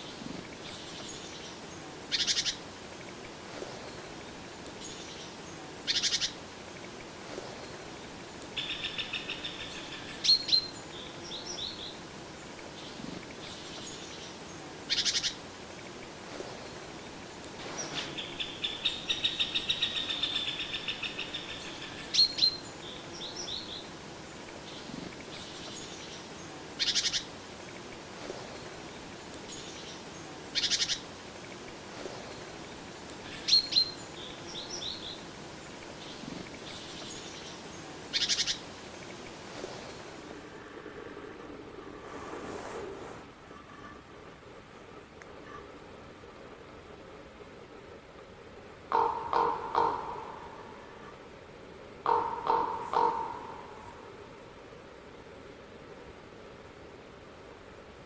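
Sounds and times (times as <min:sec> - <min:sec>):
trilled birdsong: 0:00.0 - 0:42.0, 0:48.9 - 0:54.7
short noisy bird calls: 0:52.0 - 0:54.2.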